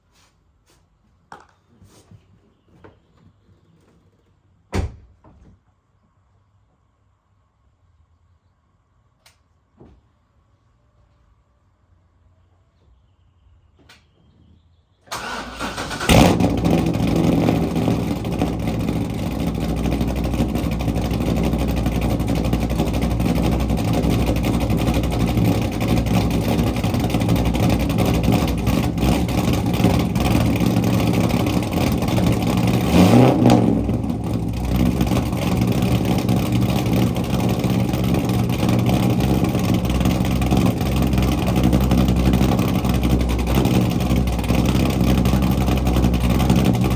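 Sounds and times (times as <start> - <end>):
car engine starting and idling: 15.1 - 46.9
engine revving: 15.2 - 46.9.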